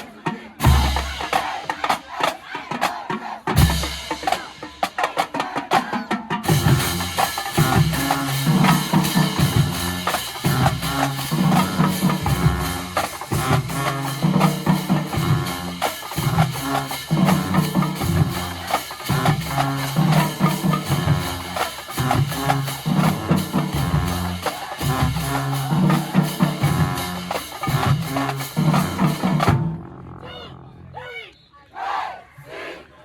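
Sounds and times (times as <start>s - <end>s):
drumline: 0.0s - 30.0s
marching band playing: 0.0s - 30.6s
low brass bass line: 6.5s - 30.9s.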